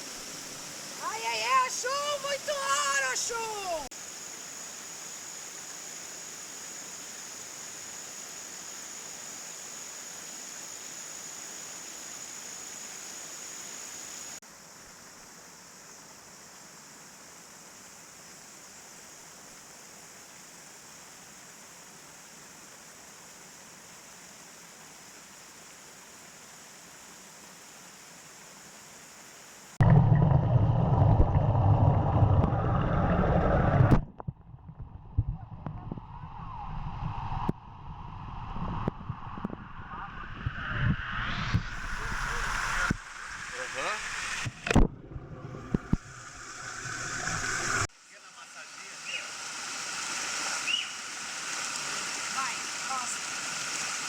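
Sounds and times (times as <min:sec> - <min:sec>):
deep rush of water close by: 0:00.0 - 0:03.8, 0:41.3 - 0:54.0
waterfall rushing: 0:00.0 - 0:03.9, 0:41.7 - 0:54.0.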